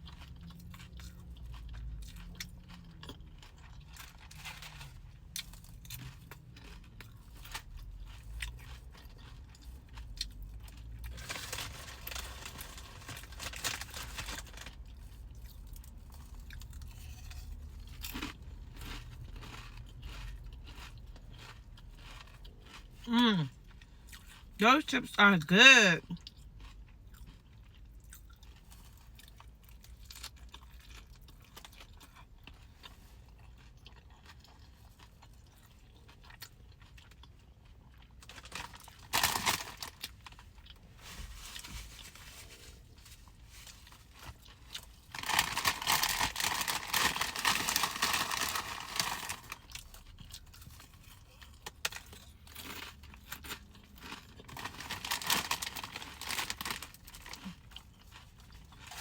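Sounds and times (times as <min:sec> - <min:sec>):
chips crunching being chewed: 0:00.0 - 0:59.0.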